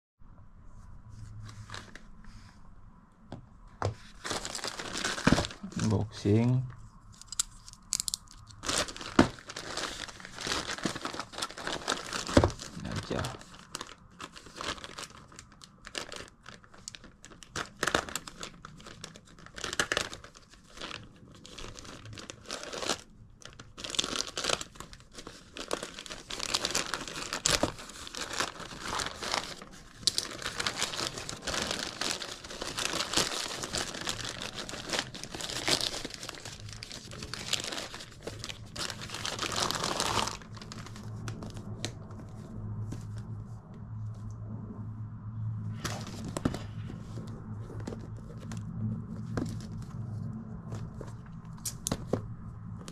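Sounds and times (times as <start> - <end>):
packaging crinkling and rustling: 1.3 - 2.2, 3.9 - 43.3, 45.8 - 52.9
packaging tearing: 4.2 - 6.0, 7.2 - 42.0.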